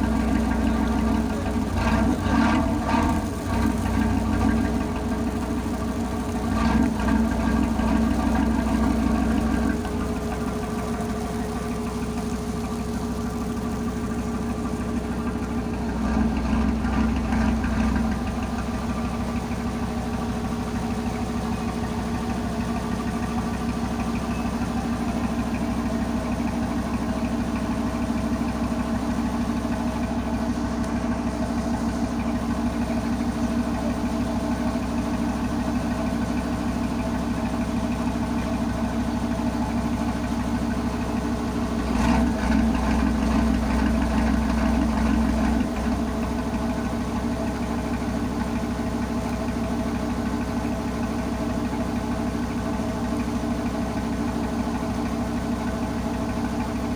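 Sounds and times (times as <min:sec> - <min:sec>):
tugboat engine running: 0:00.0 - 0:56.9.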